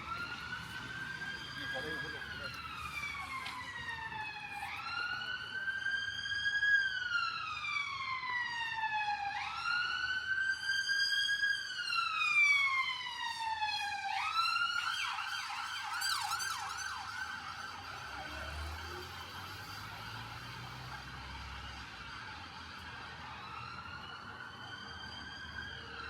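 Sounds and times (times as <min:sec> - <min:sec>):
siren wailing and yelping: 0:14.2 - 0:21.8.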